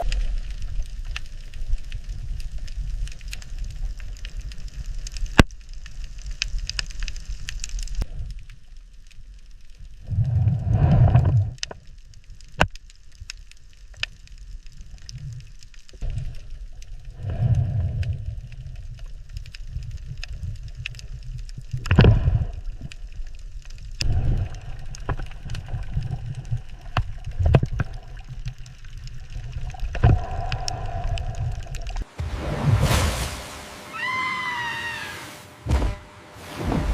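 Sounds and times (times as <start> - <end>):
bubbling gurgles: 16.0 - 32.9
underwater surging rumbles: 24.1 - 36.9.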